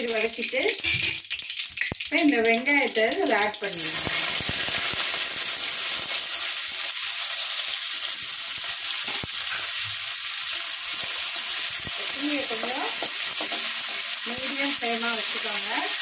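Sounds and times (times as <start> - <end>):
onions sizzling in hot oil: 0.0 - 16.0
spatula stirring: 8.6 - 16.0.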